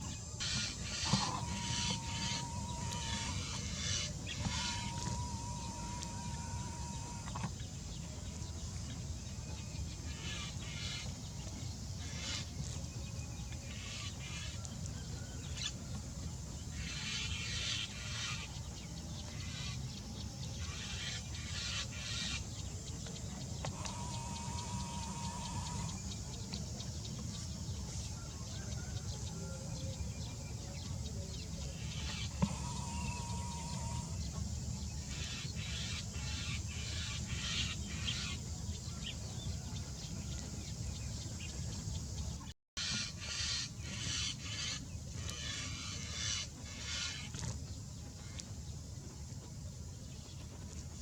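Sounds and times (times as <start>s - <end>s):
bird calls: 0.0s - 8.8s, 16.7s - 40.5s, 41.3s - 48.5s.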